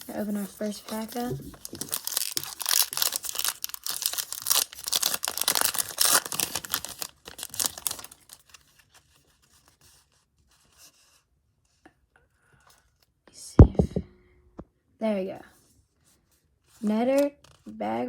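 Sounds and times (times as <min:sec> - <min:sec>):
wrapper tearing and crinkling: 0:00.8 - 0:08.9.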